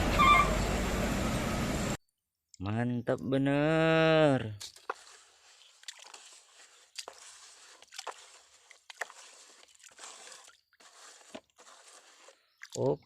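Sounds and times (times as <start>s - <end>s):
sand being dug and brushed: 3.8s - 13.0s.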